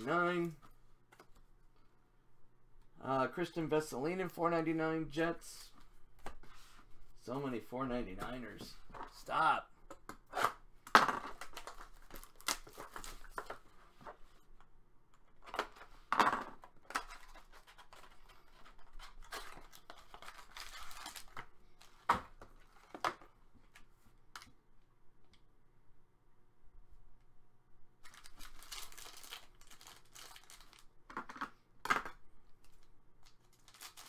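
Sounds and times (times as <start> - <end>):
card pack wrappers tearing: 11.4 - 13.5, 16.9 - 22.0, 28.0 - 30.9, 33.2 - 34.0.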